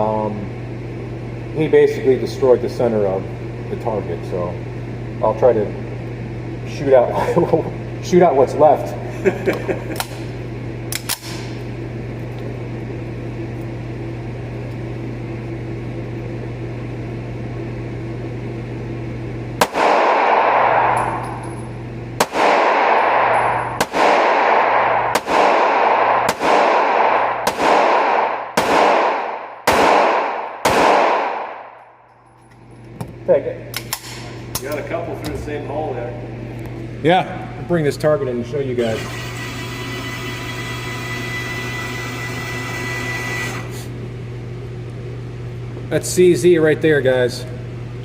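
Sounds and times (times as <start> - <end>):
steady hum: 0.0 - 48.0
pistol shots echoing indoors: 19.6 - 21.4, 22.2 - 32.0.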